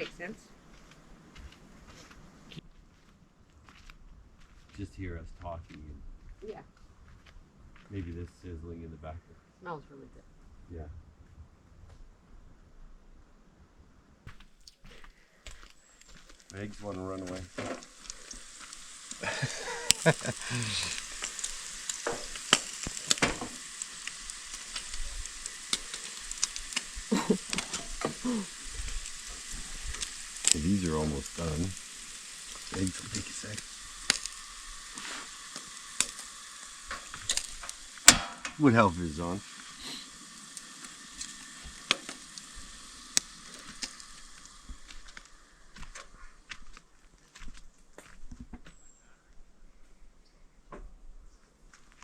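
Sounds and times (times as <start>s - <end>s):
eggs sizzling in a pan: 0.0s - 2.6s, 14.3s - 48.1s
sharp pops: 14.3s - 46.2s.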